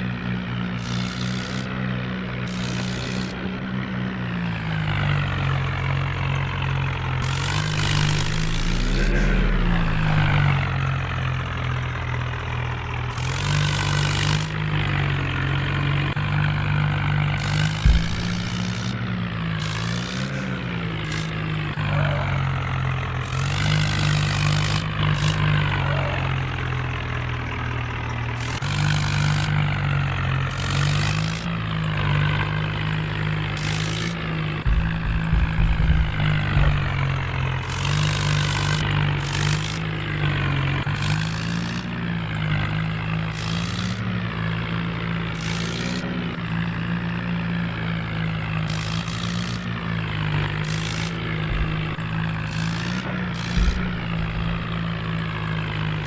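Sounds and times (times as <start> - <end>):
tractor engine running: 0.0 - 56.0
low knocks: 7.2 - 10.6, 17.8 - 18.8, 34.6 - 38.2, 51.3 - 52.6, 53.3 - 55.2.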